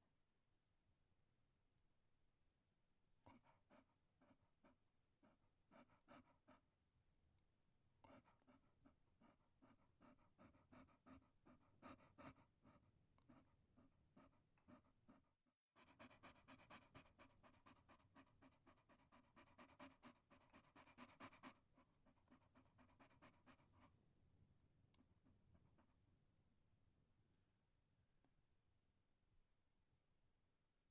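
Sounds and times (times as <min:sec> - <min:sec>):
small dog panting quickly: 0:03.3 - 0:06.7, 0:08.0 - 0:24.0.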